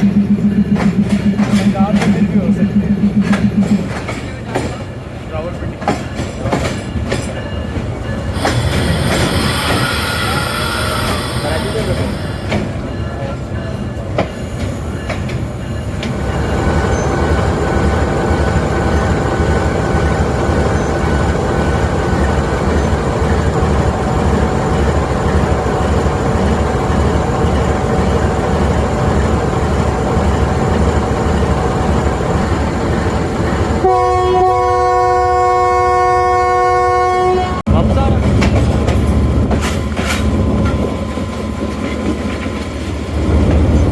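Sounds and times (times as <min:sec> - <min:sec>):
train rumbling over track: 0:00.0 - 0:43.9
locomotive horn blast: 0:33.8 - 0:37.7.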